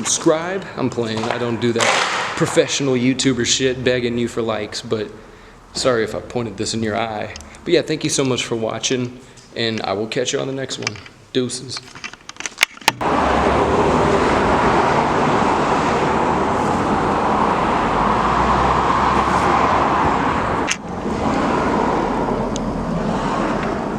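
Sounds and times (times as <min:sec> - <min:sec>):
loud rushing noise: 0:00.0 - 0:08.1, 0:13.0 - 0:23.9
sharp clicks: 0:07.3 - 0:08.4, 0:11.8 - 0:13.0.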